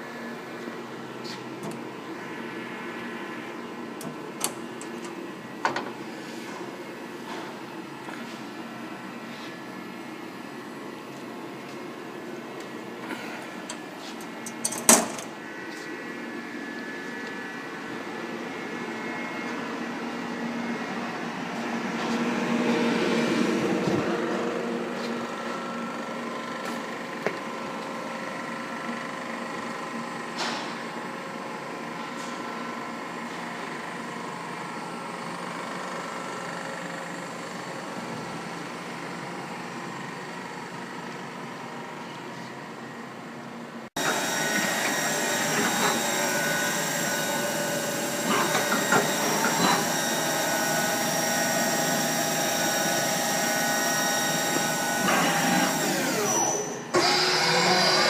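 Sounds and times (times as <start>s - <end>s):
lathe machine whirring: 44.0s - 58.0s.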